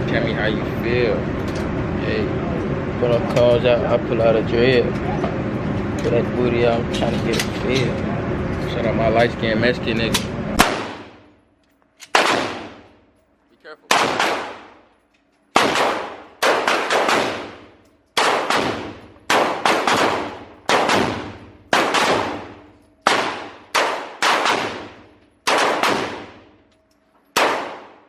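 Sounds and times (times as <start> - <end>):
gunshots with ringing echo: 10.6 - 11.3, 12.1 - 13.0, 13.9 - 14.9, 15.5 - 26.7, 27.3 - 28.0.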